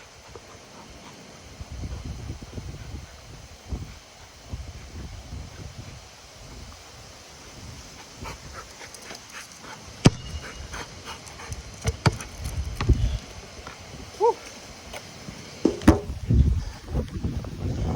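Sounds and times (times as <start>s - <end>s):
dog panting: 0.0s - 6.2s, 7.9s - 11.8s
sharp knocks: 15.7s - 16.2s.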